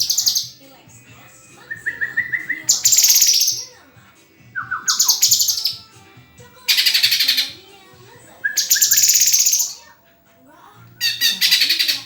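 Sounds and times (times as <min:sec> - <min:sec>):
songbird chattering: 0:00.0 - 0:00.6, 0:01.6 - 0:03.8, 0:04.6 - 0:05.9, 0:06.6 - 0:07.7, 0:08.4 - 0:09.9, 0:11.0 - 0:12.0.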